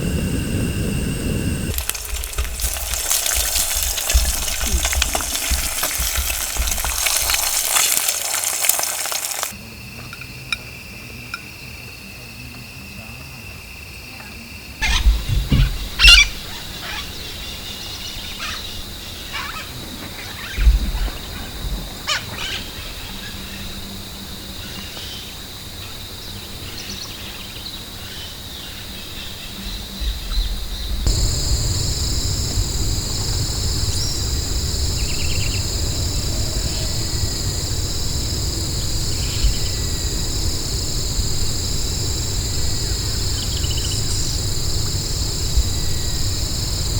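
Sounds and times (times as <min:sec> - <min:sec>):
low rumble: 0:00.0 - 0:07.8, 0:30.8 - 0:46.9
night insects chorus: 0:00.0 - 0:46.9
low thuds: 0:14.8 - 0:17.7, 0:30.9 - 0:46.9.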